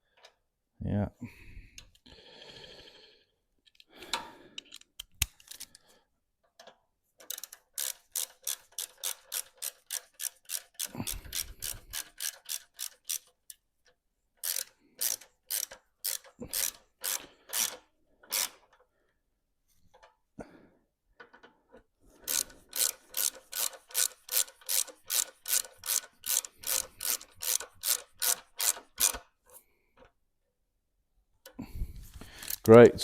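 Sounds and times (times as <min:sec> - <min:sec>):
socket ratchet clicking: 0:04.6 - 0:05.8, 0:07.2 - 0:13.6, 0:14.4 - 0:18.6, 0:22.2 - 0:29.3, 0:32.2 - 0:32.8.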